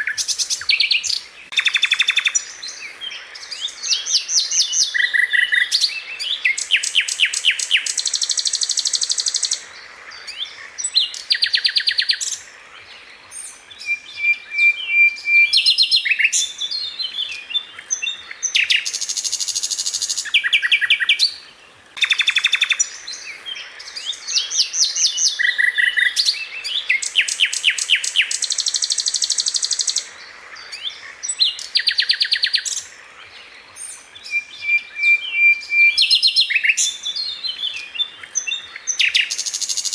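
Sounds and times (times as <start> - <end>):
flycatcher singing fast trills: 0.0 - 9.7, 22.0 - 30.1.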